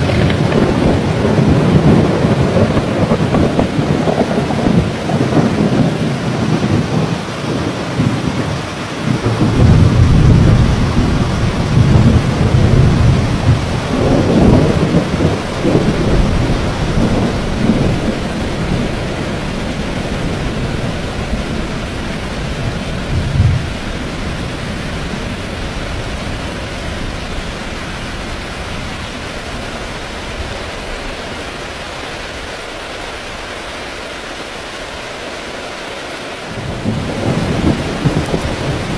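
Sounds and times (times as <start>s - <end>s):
sharp thunder clap: 0.0s - 7.1s, 8.0s - 19.0s, 36.6s - 38.9s
thunder rumbling: 0.0s - 31.9s, 36.5s - 38.9s
heavy rain: 0.0s - 38.9s.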